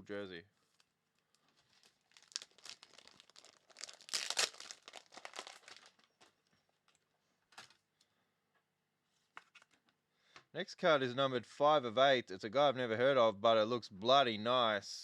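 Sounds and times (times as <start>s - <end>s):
plastic crinkling and rustling: 0.6s - 7.8s.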